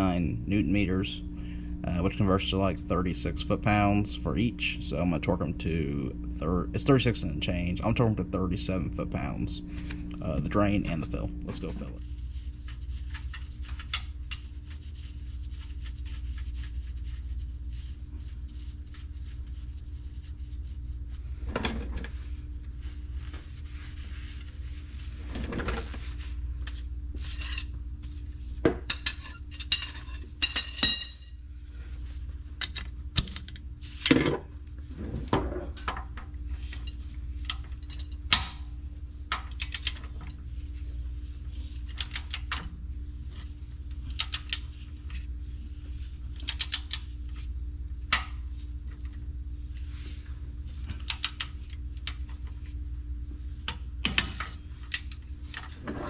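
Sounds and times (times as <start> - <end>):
steady low hum: 0.0 - 56.0
metal tools clinking: 29.6 - 31.3.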